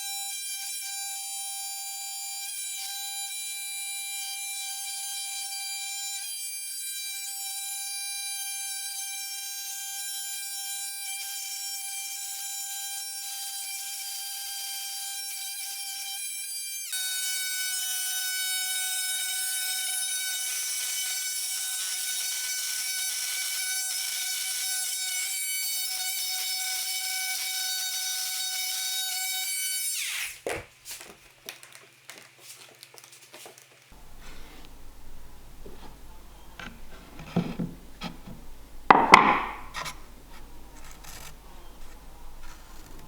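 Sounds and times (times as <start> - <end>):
light knocks and clicks: 34.0 - 43.0
power tool whining: 34.0 - 43.0.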